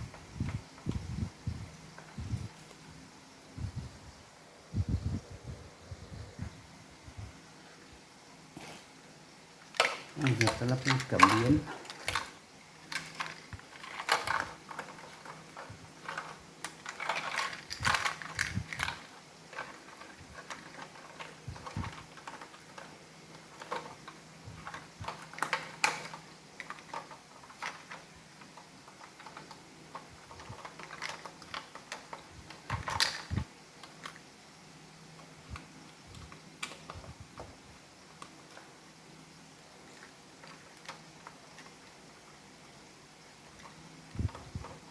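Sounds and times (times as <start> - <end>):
faint low hum: 0.0 - 44.9
plastic parts clicking and rattling: 9.6 - 34.3, 35.1 - 42.5, 43.3 - 44.9.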